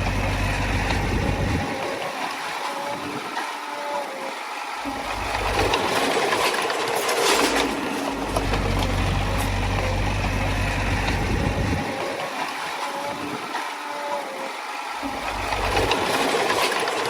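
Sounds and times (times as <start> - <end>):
bulldozer diesel engine under load: 0.0 - 2.1, 4.9 - 12.4, 15.0 - 17.0
steel tracks clattering: 4.8 - 13.9, 15.0 - 17.0.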